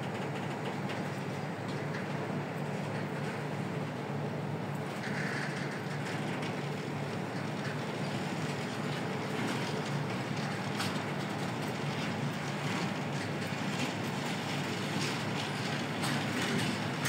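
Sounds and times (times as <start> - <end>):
steel wheels on rails: 4.8 - 17.0.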